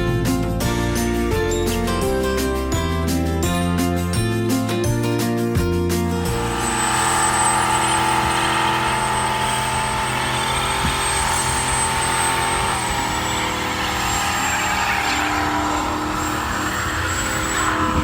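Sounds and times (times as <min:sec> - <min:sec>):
race car engine idling loudly: 0:06.2 - 0:18.0.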